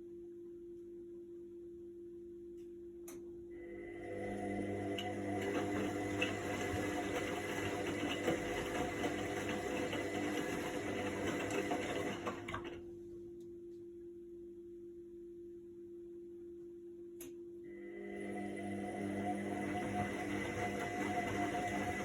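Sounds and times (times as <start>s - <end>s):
faint low electrical hum: 0.0s - 5.1s, 12.2s - 19.4s
washing machine drum whirring: 3.6s - 12.9s, 17.8s - 22.0s.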